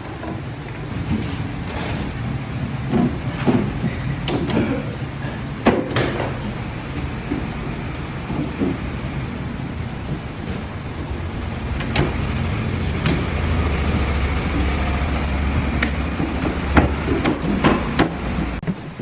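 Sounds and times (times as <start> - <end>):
low rumble: 6.4 - 18.7.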